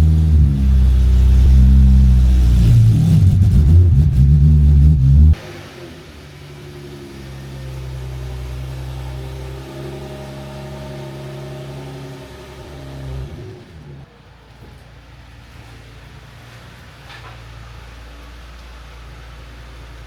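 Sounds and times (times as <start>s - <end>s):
car engine running: 0.0s - 15.6s.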